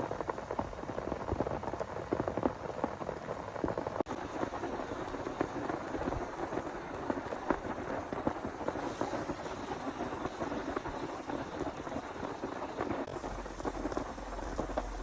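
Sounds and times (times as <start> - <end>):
heavy rain patter: 0.0 - 15.0.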